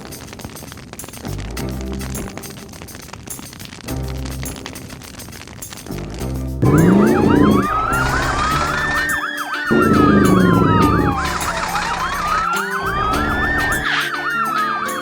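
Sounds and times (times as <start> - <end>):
siren wail: 6.6 - 15.0
siren yelp: 6.6 - 15.0.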